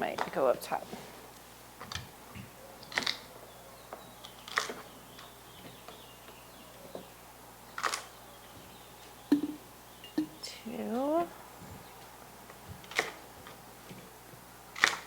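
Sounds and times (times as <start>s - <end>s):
kitchen containers knocking: 9.3s - 10.4s.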